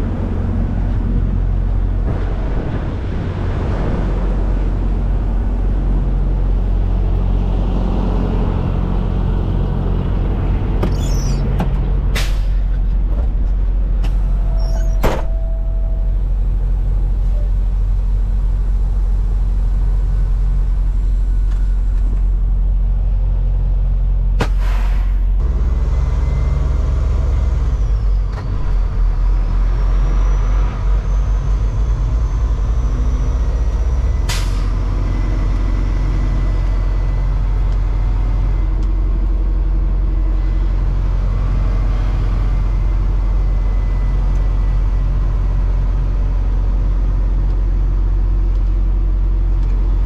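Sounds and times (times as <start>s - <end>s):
diesel truck engine rumbling: 0.0s - 50.0s
air brakes hiss: 12.2s - 12.7s, 24.4s - 25.4s, 34.3s - 34.8s.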